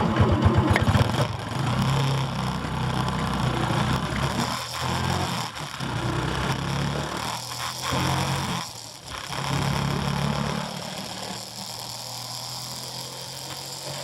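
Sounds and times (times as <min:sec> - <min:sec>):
motorbike engine running: 0:00.0 - 0:14.0.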